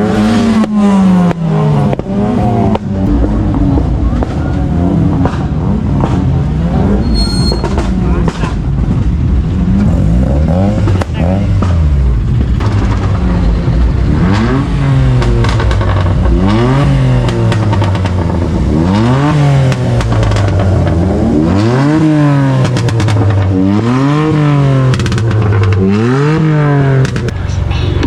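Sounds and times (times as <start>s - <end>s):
car engine revving: 0.0s - 28.0s
exhaust crackles: 0.0s - 28.0s.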